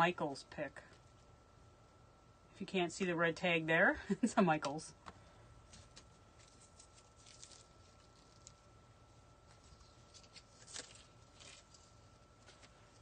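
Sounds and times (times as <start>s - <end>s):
artificial greenery rustling: 5.6s - 13.0s.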